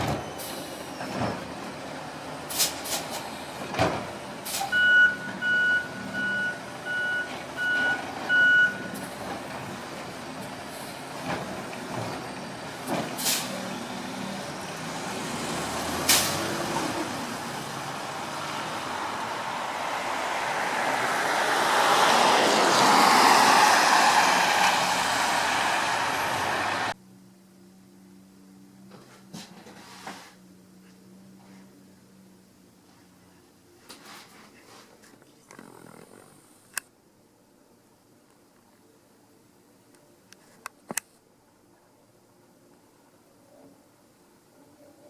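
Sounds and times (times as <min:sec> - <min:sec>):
air brake hiss: 0:02.5 - 0:03.3, 0:04.4 - 0:04.8, 0:13.2 - 0:13.6, 0:16.1 - 0:16.5
reversing alarm beeping: 0:04.7 - 0:09.0.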